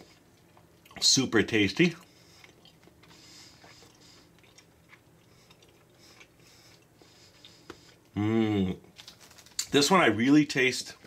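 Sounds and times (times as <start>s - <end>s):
faint chewing: 0.0s - 1.1s, 1.8s - 8.2s.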